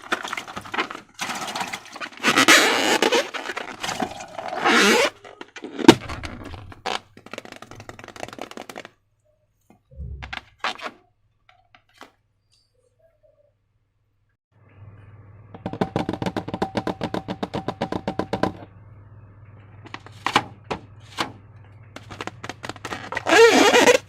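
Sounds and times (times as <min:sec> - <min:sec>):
balloon sharp crack: 0:02.2 - 0:09.0
soft low thump: 0:09.9 - 0:10.6.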